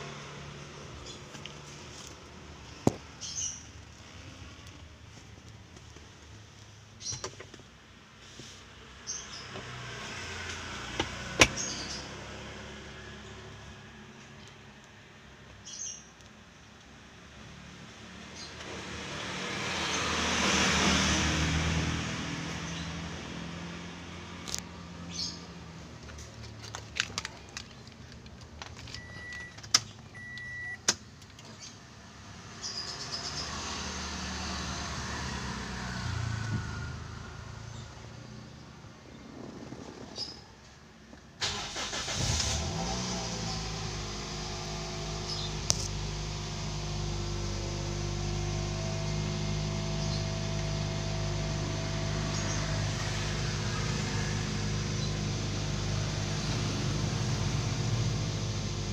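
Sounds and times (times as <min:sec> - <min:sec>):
car engine starting and idling: 0:09.1 - 0:15.0, 0:18.2 - 0:32.3, 0:41.1 - 0:58.9.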